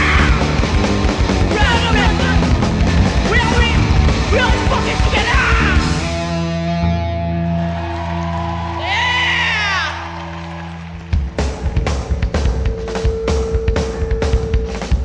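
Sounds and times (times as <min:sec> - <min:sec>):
person yelling vocals: 0:00.0 - 0:00.5, 0:01.5 - 0:02.5, 0:03.2 - 0:06.0
hardcore punk band playing: 0:00.0 - 0:08.2, 0:10.9 - 0:15.0.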